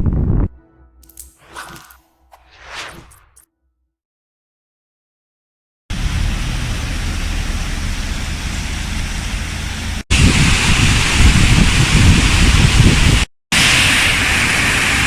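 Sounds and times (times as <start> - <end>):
wind buffeting microphone: 10.1 - 13.3.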